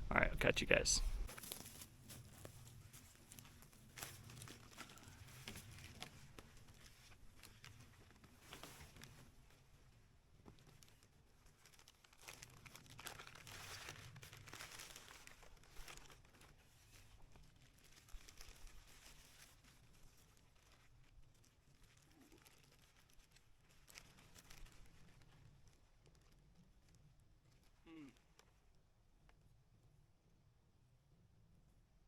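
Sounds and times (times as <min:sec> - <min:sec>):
faint crinkling rustles: 0:01.0 - 0:29.9.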